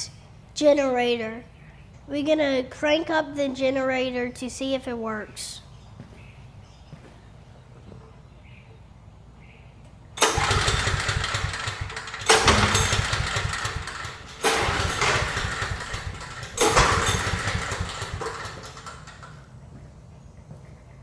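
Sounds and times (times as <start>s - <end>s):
generator engine cranking: 10.2s - 19.6s.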